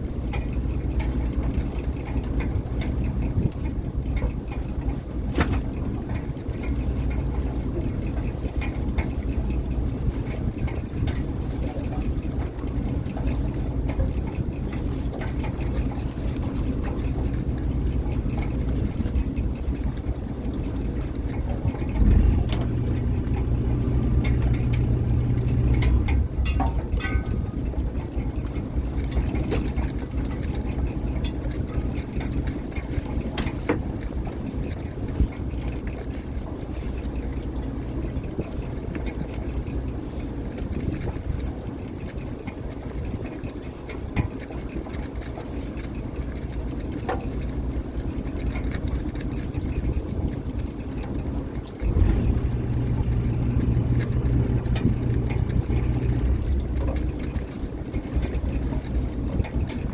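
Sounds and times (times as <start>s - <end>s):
boat engine running: 0.0s - 59.9s
low hum: 16.2s - 32.0s, 51.8s - 59.9s
metal clanks: 21.6s - 30.4s.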